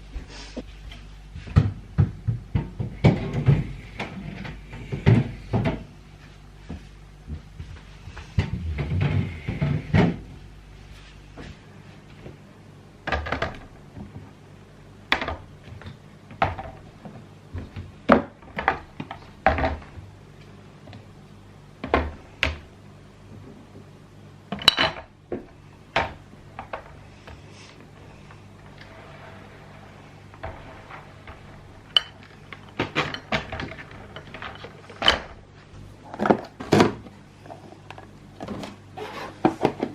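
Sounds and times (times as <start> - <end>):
low steady hum: 0.0 - 39.9
food containers knocking and clattering: 1.4 - 6.0, 15.1 - 20.0, 24.5 - 27.4, 29.5 - 38.8, 39.4 - 39.9.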